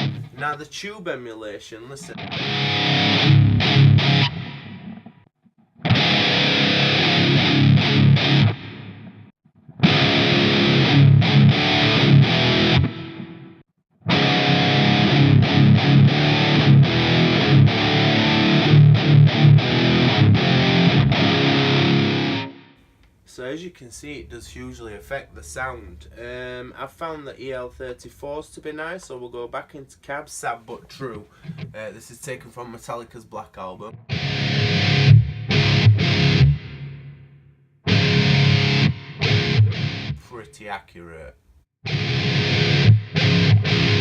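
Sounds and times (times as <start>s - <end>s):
distorted electric guitar chugging riffs: 0.0s - 0.4s, 2.1s - 22.8s, 33.9s - 37.3s, 37.9s - 40.2s, 41.9s - 44.0s.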